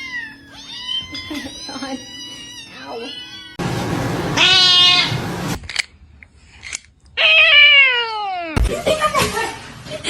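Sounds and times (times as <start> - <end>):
cat meowing: 0.0 - 3.6, 4.4 - 5.2, 7.2 - 8.6.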